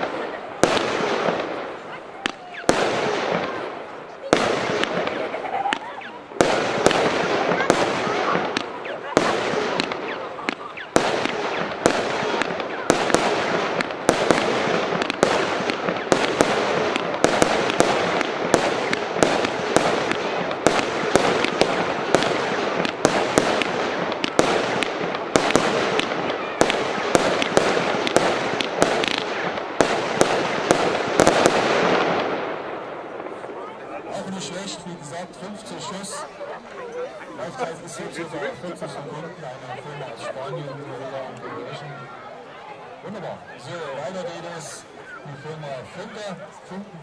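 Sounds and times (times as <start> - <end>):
firework battery firing: 0.0 - 35.5.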